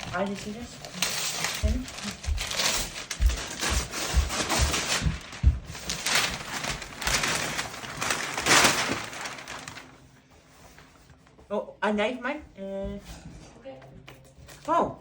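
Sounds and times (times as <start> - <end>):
wrapping paper tearing and crumpling: 0.0 - 10.2.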